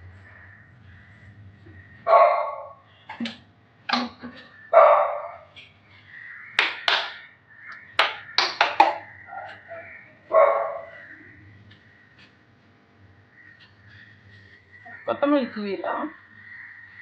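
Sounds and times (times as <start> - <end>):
dog barking: 2.0 - 2.8, 4.7 - 5.5, 9.3 - 11.2
sharp clicks and knocks: 6.6 - 9.6.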